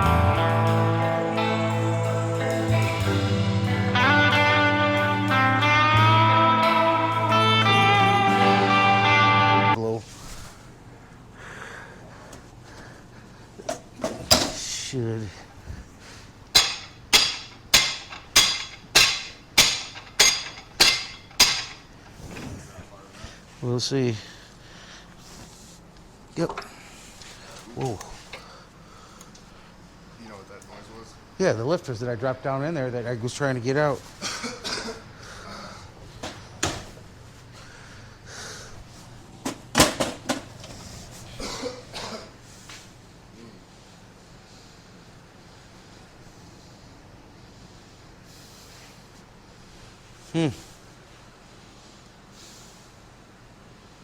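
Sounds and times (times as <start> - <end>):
steady low hum: 0.0 - 54.0
hammer striking metal: 16.5 - 21.8
tools and parts knocking: 16.5 - 21.8.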